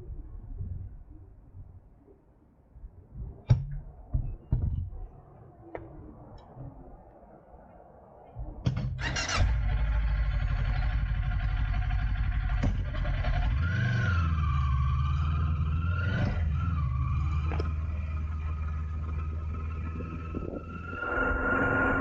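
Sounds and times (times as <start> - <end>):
motorcycle engine starting and idling: 9.0 - 20.3.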